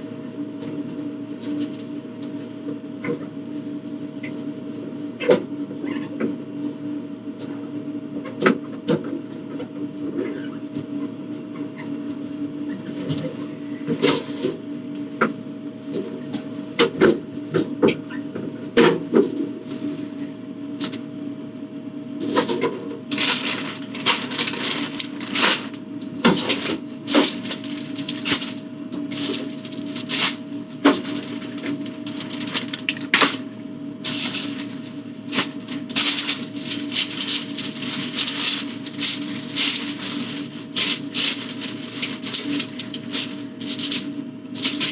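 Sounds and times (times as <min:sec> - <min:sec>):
steady low hum: 0:19.4 - 0:44.9.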